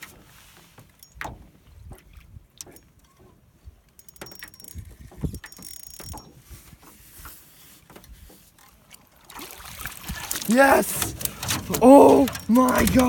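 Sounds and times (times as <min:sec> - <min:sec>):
fishing reel cranking: 0:04.0 - 0:06.3
mechanical clicks and knocks: 0:10.9 - 0:13.0.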